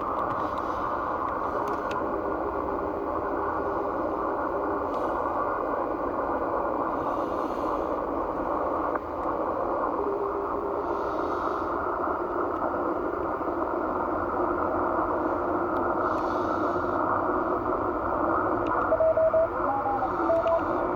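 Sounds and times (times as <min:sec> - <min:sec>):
radio band hiss: 0:00.0 - 0:20.9
morse code beeps: 0:18.8 - 0:20.9.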